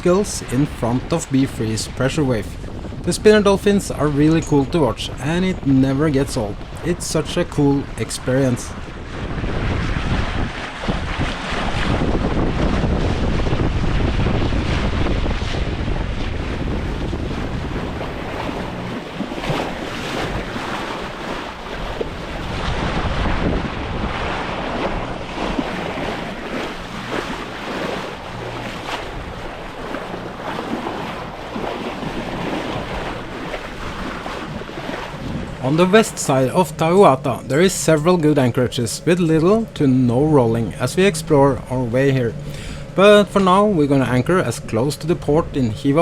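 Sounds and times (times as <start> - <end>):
waves rushing along hull: 0.0 - 46.0
wind buffeting microphone: 0.0 - 46.0.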